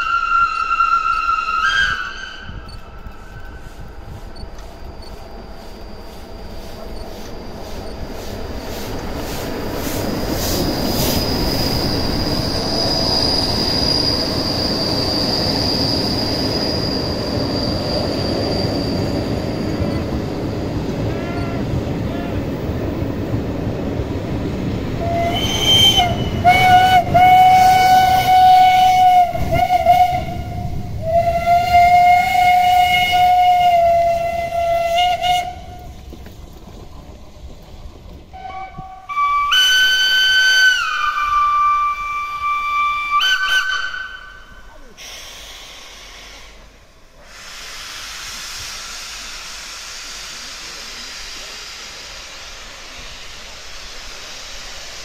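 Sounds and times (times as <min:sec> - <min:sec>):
low steam whistle blasts: 0:00.0 - 0:04.4, 0:10.5 - 0:20.3, 0:21.0 - 0:22.4, 0:25.0 - 0:36.0, 0:38.3 - 0:55.0
high-pitched steam whistle: 0:00.0 - 0:06.9, 0:10.1 - 0:22.4, 0:25.0 - 0:35.9, 0:38.3 - 0:55.0
passing train rumble: 0:00.0 - 0:55.0
steady steam hiss: 0:00.0 - 0:55.0.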